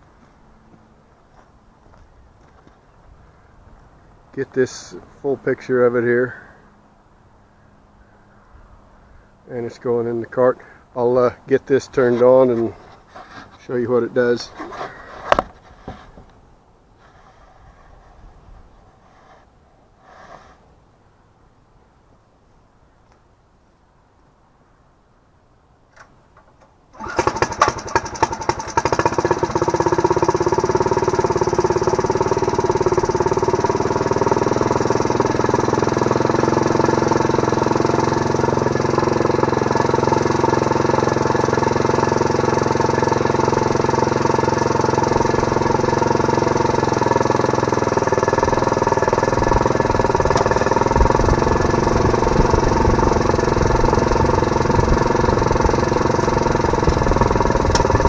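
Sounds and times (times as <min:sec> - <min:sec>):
small engine sputtering and running: 0:27.0 - 0:58.0.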